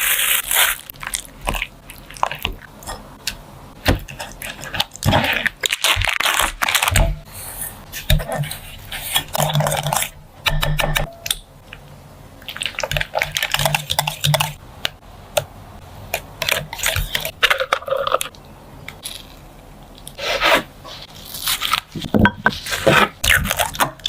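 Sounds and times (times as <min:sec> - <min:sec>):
crisp food crunching and crackling: 0:00.0 - 0:03.0, 0:04.0 - 0:07.0, 0:19.0 - 0:20.2, 0:21.1 - 0:24.0.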